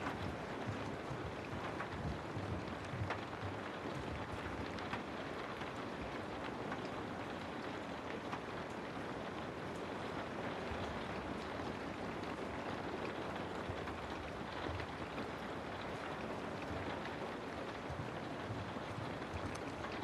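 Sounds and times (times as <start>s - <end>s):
steady rainfall: 0.0s - 20.0s
raindrops tapping: 9.7s - 20.0s.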